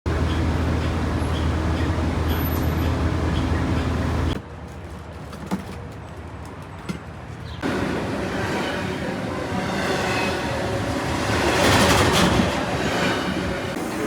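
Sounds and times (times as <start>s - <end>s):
low mechanical rumble: 0.1s - 4.4s.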